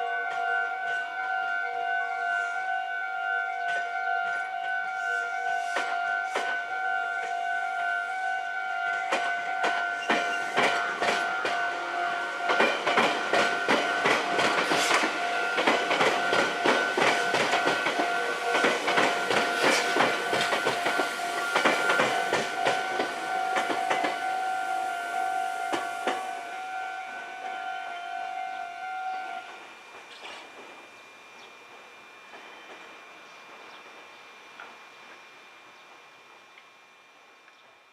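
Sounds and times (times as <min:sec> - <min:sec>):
level-crossing warning bell: 0:00.0 - 0:30.4
train wheels clattering: 0:09.1 - 0:11.7, 0:12.4 - 0:24.3.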